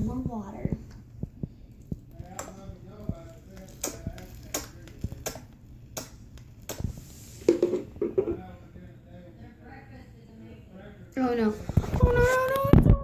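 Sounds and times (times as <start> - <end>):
bath bomb fizzing: 1.8 - 8.0.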